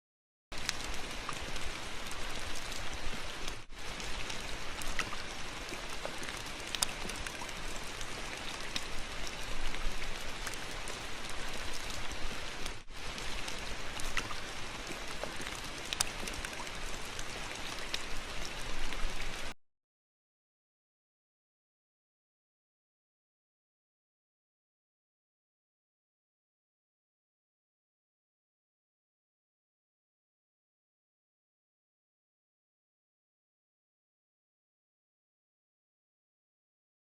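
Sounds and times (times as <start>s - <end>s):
steady rain patter: 0.5s - 19.6s.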